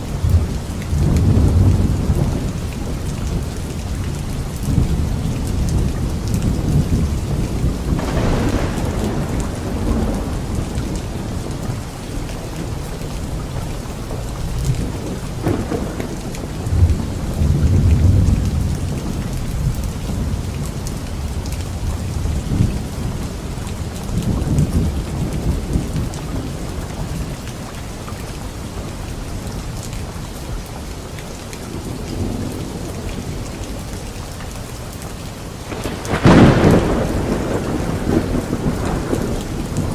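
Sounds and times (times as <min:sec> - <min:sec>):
steady rain falling: 0:00.0 - 0:39.9
rolls of thunder: 0:05.8 - 0:11.8, 0:14.6 - 0:20.4, 0:35.7 - 0:39.9.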